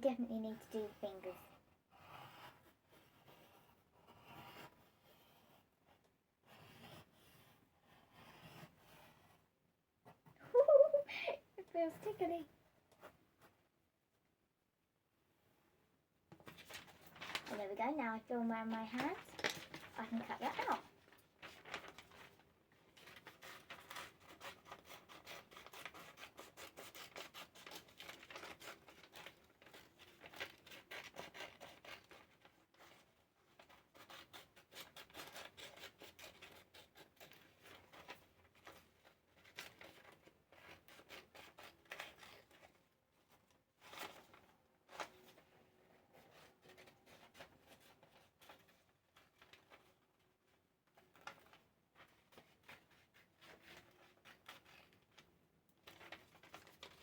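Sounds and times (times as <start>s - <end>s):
scissors snipping paper: 18.5s - 20.8s, 23.0s - 32.9s, 33.6s - 38.0s.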